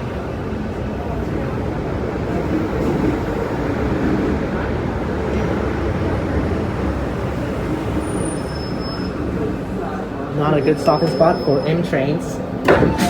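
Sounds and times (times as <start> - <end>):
train rumbling: 9.2 - 13.0.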